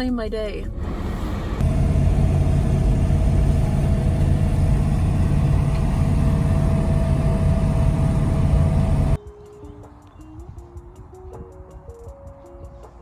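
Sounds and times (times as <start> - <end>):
car engine and road noise: 0.0 - 9.2.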